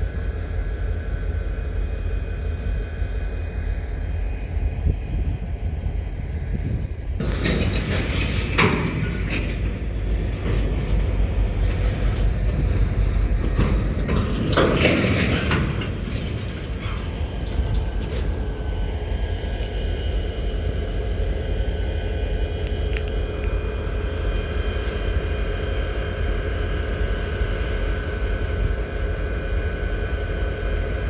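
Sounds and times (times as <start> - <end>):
railcars rumbling: 0.0 - 31.0
steel wheels squealing: 2.6 - 31.0
metallic clanks and bangs: 7.2 - 19.0.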